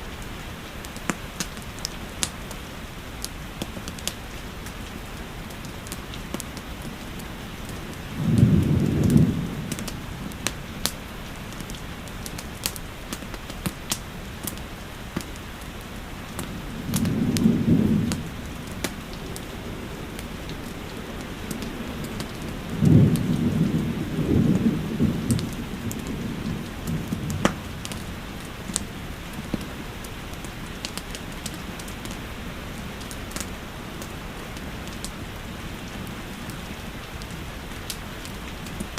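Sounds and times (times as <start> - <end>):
steady rain: 0.0 - 38.9
fireplace crackling: 0.1 - 38.9
thunder rumbles: 5.7 - 12.8, 16.3 - 29.7.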